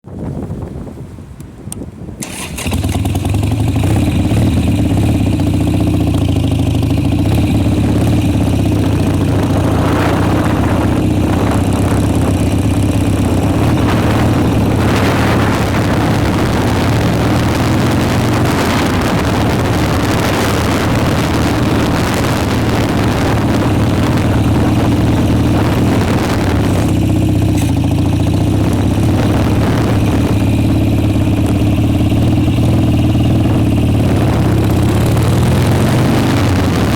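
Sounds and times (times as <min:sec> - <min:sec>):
motorcycle engine running: 0:02.2 - 0:36.9.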